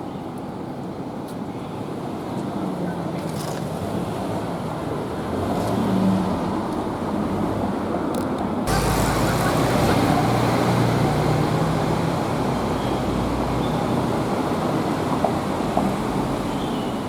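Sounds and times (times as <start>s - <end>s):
street traffic: 0.7s - 17.0s
vehicle engine running close: 8.7s - 17.0s.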